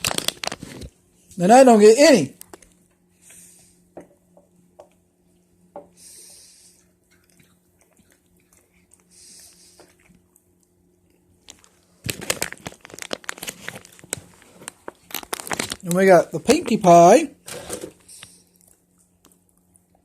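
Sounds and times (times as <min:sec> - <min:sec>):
chewing potato chips: 0:00.0 - 0:01.0, 0:06.8 - 0:16.1
chip bag crinkling: 0:00.0 - 0:01.0, 0:11.4 - 0:17.0.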